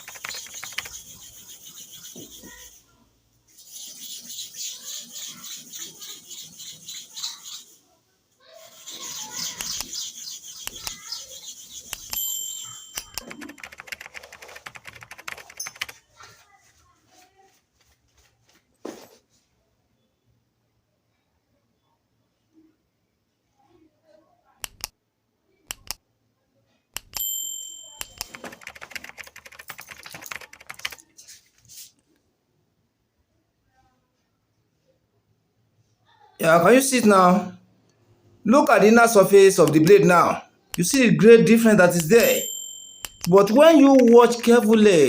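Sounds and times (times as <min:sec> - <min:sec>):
blade clicks: 0:11.8 - 0:12.2, 0:24.6 - 0:24.9, 0:25.7 - 0:26.0, 0:27.0 - 0:27.2
metallic ring: 0:27.2 - 0:28.1, 0:42.4 - 0:43.3.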